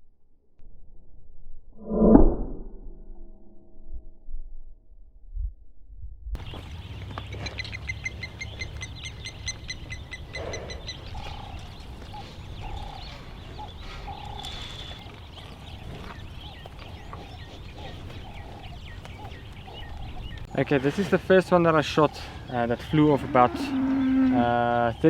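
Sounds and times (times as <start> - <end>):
short lower bird calls: 7.4 - 15.2
wind rumble on microphone: 9.8 - 20.5.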